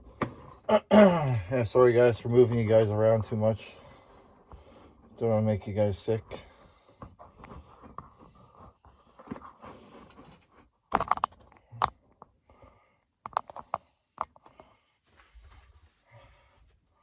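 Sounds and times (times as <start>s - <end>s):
camera handling rustles: 10.3s - 12.0s.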